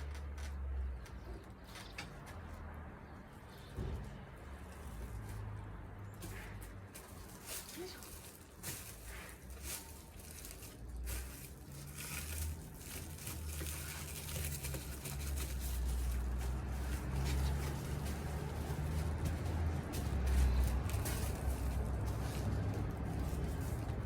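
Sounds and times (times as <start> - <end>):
rustling and light clicks of parts: 0.0 - 2.7, 3.5 - 24.0.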